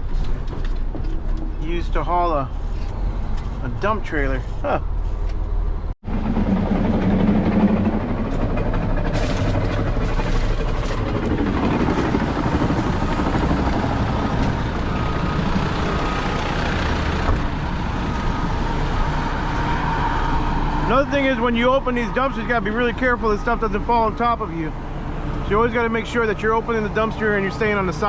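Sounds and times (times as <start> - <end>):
truck engine running: 0.0 - 28.0.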